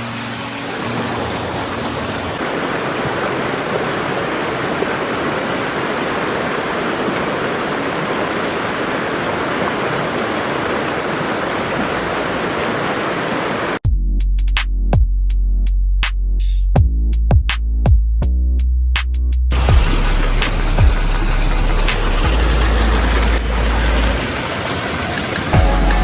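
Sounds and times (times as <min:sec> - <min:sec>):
waterfall rushing: 0:00.0 - 0:13.8, 0:19.5 - 0:26.0
electronic music with heavy bass: 0:13.9 - 0:24.2, 0:25.6 - 0:26.0.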